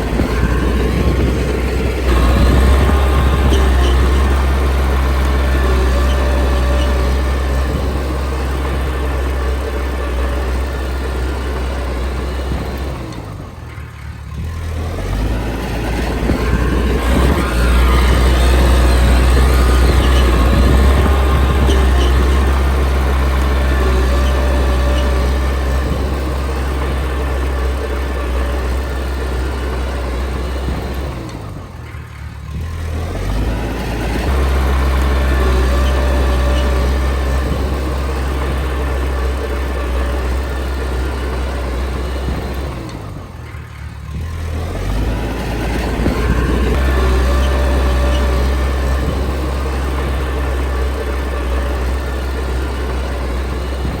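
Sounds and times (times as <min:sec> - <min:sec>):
bulldozer diesel engine under load: 0:00.0 - 0:54.0.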